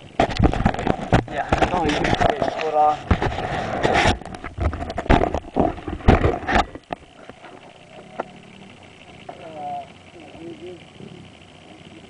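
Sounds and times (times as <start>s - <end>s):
rustling and knocks on microphone: 0.2s - 7.7s.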